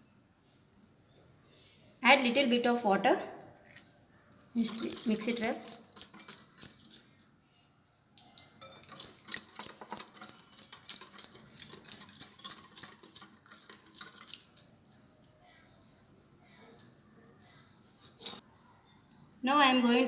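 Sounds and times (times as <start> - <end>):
spoon clinking against a bowl: 4.6 - 7.3, 8.4 - 15.4, 16.3 - 17.7.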